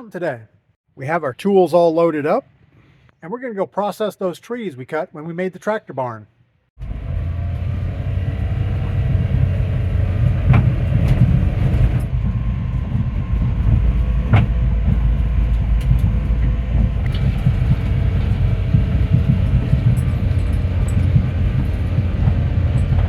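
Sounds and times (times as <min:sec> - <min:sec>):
tractor diesel engine running: 0:06.8 - 0:23.0
rattling and sharp knocks: 0:10.3 - 0:23.0.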